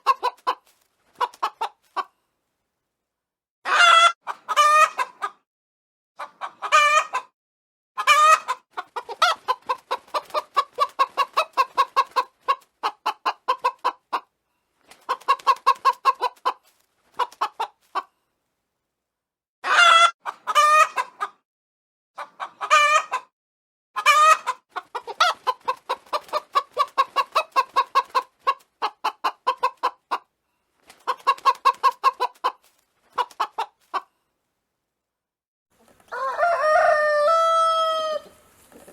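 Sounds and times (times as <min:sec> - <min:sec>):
chicken drawn-out calls: 0:00.0 - 0:02.2, 0:03.6 - 0:05.4, 0:06.2 - 0:07.3, 0:08.0 - 0:14.3, 0:14.9 - 0:18.2, 0:19.6 - 0:21.4, 0:22.2 - 0:23.3, 0:24.0 - 0:34.2, 0:35.8 - 0:38.9
chickens clucking: 0:00.0 - 0:02.2, 0:03.7 - 0:05.4, 0:06.2 - 0:07.3, 0:08.0 - 0:14.3, 0:14.9 - 0:18.1, 0:19.6 - 0:21.4, 0:22.2 - 0:23.3, 0:24.0 - 0:34.2, 0:35.8 - 0:38.9.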